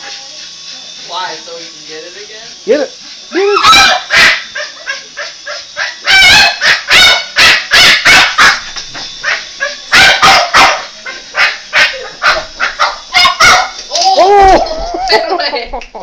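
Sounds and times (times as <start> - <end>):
dog barking: 3.6 - 13.8.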